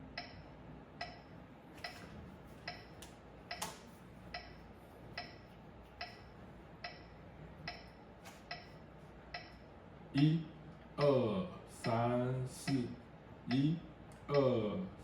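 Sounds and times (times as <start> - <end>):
metronome ticking: 0.1 - 1.3, 4.3 - 4.6, 5.2 - 5.4, 6.0 - 9.6, 11.0 - 11.2, 11.8 - 14.7.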